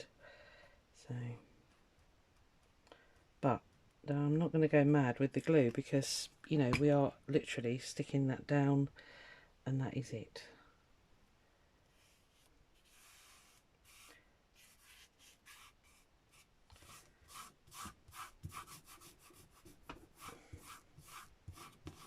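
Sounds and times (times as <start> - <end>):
dry rubbing on book cover: 11.9 - 22.0.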